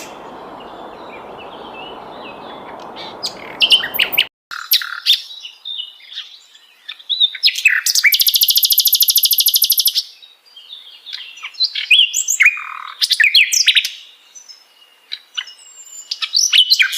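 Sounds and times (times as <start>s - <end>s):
bird chirps and whistles: 7.8s - 10.0s.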